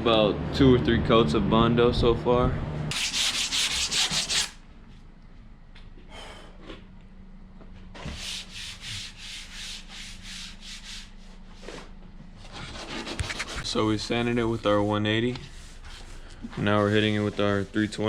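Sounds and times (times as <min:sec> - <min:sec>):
faint steady hum: 0:00.0 - 0:18.0
hand sanding strokes: 0:02.9 - 0:04.6, 0:08.1 - 0:11.9, 0:12.5 - 0:18.0.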